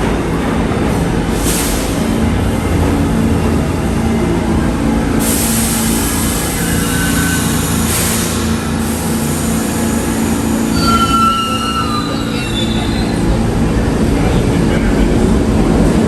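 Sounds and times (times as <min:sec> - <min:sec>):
subway train rumbling: 0:00.0 - 0:16.0
train wheels squealing: 0:10.6 - 0:13.6.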